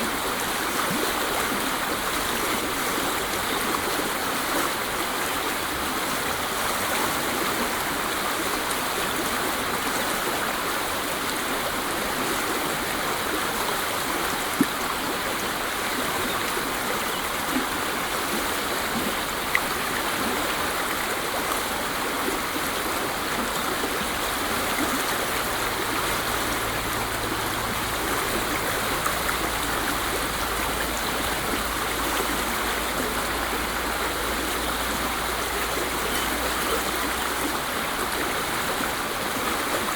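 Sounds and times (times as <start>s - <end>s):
faint water splashes: 0.0s - 39.9s
waterfall rushing: 0.0s - 39.9s.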